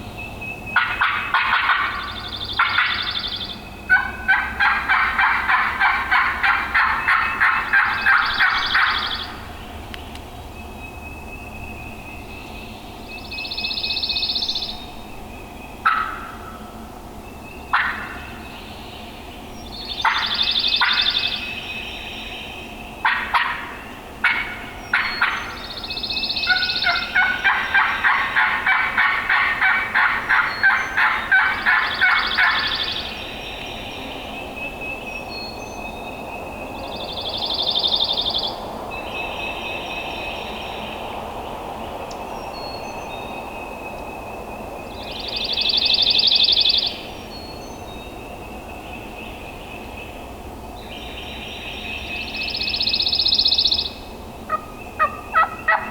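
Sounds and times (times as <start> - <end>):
faint birdsong: 0.0 - 55.9
turkey gobbling: 0.8 - 3.1, 3.9 - 9.2, 15.8 - 16.4, 17.7 - 18.2, 24.2 - 25.6, 26.5 - 32.9, 54.5 - 55.9.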